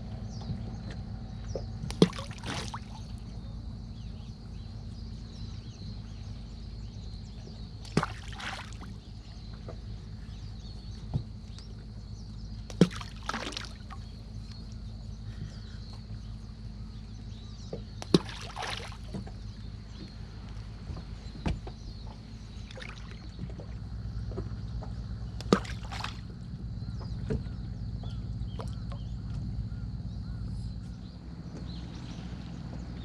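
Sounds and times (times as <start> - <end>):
steady low rumble: 0.0 - 33.0
water lapping against hull: 0.0 - 33.0
brief splash: 1.9 - 3.2, 7.8 - 9.0, 12.7 - 14.1, 18.0 - 19.3, 22.7 - 23.4, 25.4 - 26.3.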